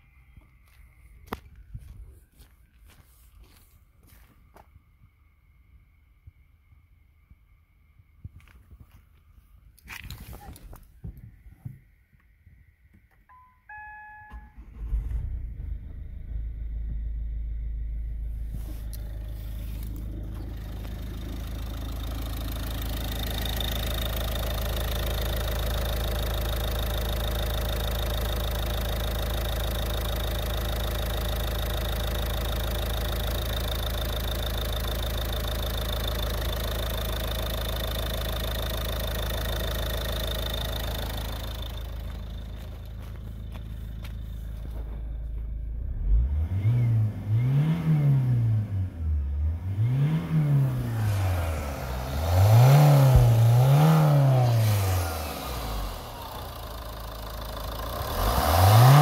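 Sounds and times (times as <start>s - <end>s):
diesel engine starting and idling: 12.9s - 59.0s
short beeps: 13.1s - 15.5s.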